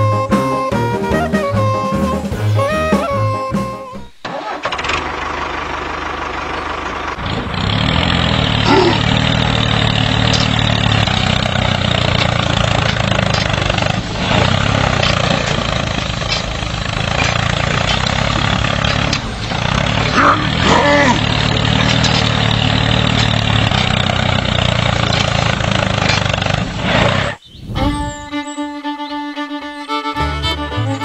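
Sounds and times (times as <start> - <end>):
tractor engine starting and running: 0.0 - 28.4.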